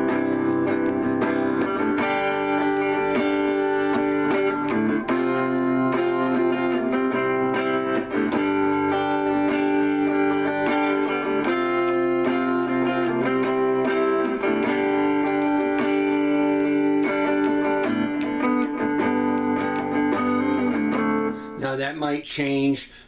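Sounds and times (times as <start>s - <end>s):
electric guitar chords: 0.0s - 21.6s.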